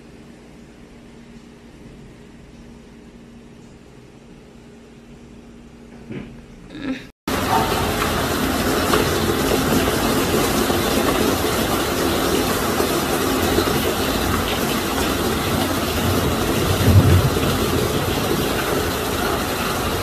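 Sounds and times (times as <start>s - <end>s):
heavy rain: 7.3s - 20.0s.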